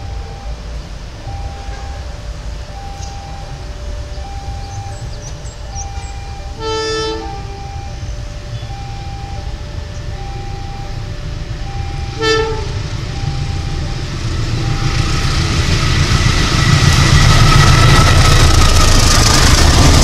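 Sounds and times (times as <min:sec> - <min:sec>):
two-tone electronic warning bell: 0:00.0 - 0:15.6
locomotive engine and wheel noise: 0:00.0 - 0:20.0
locomotive horn blast: 0:01.2 - 0:15.3.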